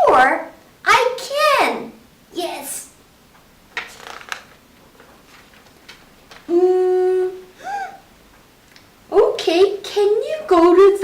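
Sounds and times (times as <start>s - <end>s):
faint clicks and rustles: 3.3s - 6.5s
person humming: 6.5s - 8.0s.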